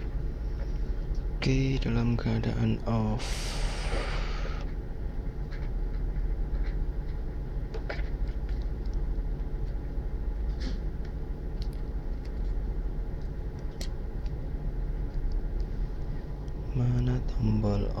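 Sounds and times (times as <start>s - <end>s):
steady low rumble: 0.0s - 18.0s
faint clicks and taps: 5.5s - 9.8s.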